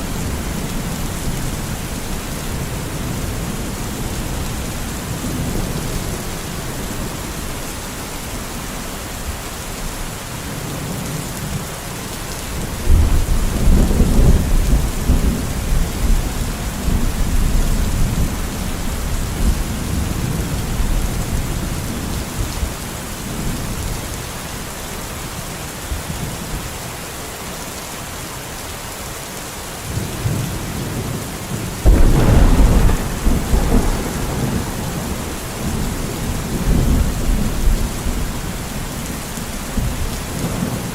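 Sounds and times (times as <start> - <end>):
steady rain: 0.0 - 40.9
rolling thunder: 31.8 - 39.0.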